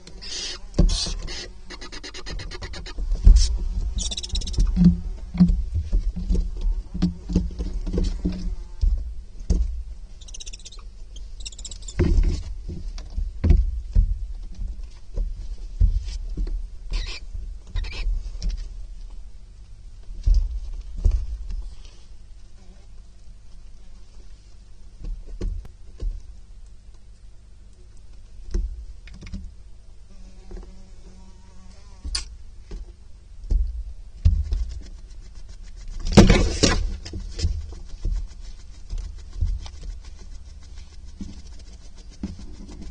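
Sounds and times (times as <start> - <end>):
owl chick hissing calls: 0.2 - 4.6, 10.2 - 12.0, 16.9 - 18.1
owlet thumping and scrabbling: 3.0 - 10.0, 11.8 - 16.7, 32.6 - 42.9.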